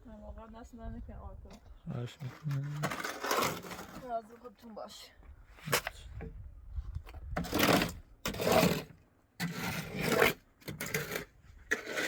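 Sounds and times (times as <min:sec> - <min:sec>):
rough scraping strokes: 0:02.1 - 0:04.2, 0:07.4 - 0:12.0.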